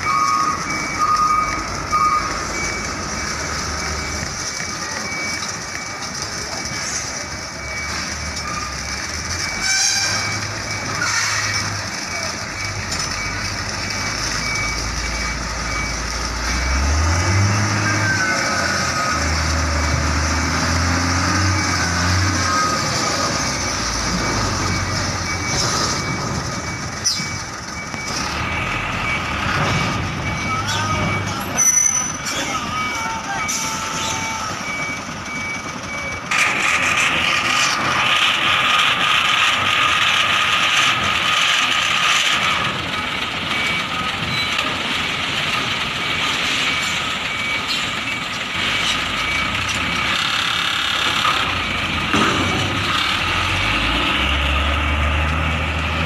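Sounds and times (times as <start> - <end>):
truck engine rumbling: 0.0 - 56.0
high-pitched beeping: 21.6 - 36.4.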